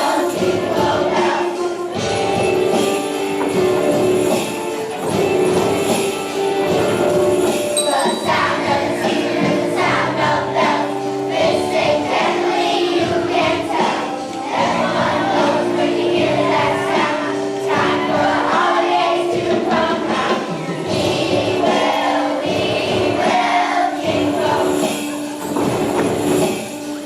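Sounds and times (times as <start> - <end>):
children's choir singing: 0.0 - 27.0
instrumental accompaniment: 0.0 - 27.0.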